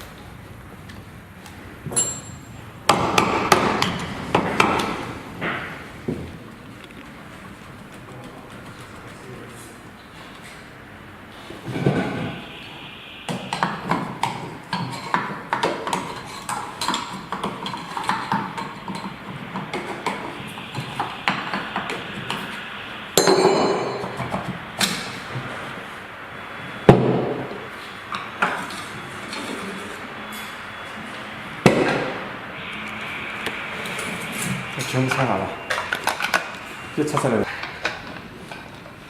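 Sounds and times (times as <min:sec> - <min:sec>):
metal clang: 0:01.9 - 0:02.6, 0:23.2 - 0:24.2
metal tools knocking and clinking: 0:01.9 - 0:02.6
sharp metal bang: 0:22.6 - 0:24.2.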